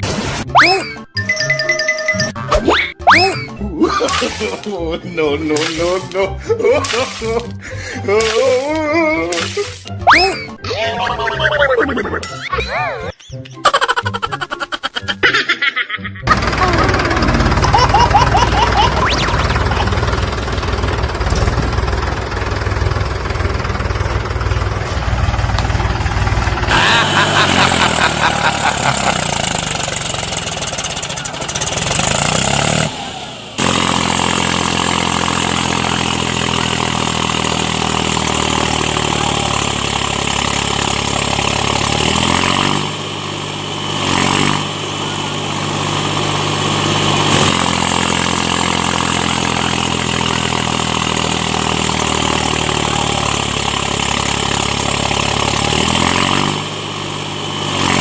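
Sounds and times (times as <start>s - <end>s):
tractor engine running: 1.2s - 15.2s, 16.2s - 58.0s.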